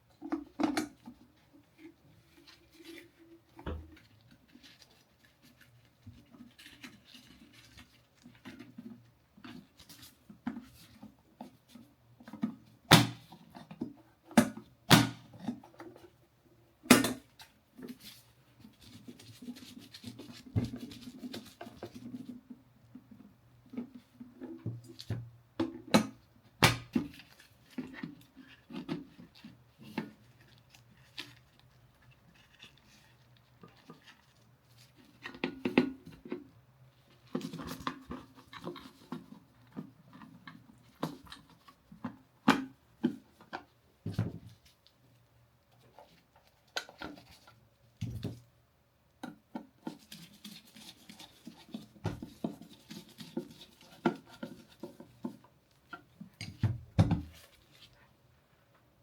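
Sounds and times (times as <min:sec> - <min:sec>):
rubbing and scraping: 0:17.8 - 0:22.5, 0:49.8 - 0:55.8.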